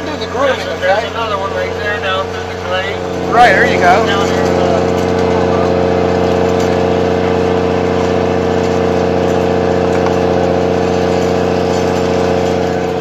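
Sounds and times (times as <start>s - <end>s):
engine droning under load: 0.0s - 13.0s.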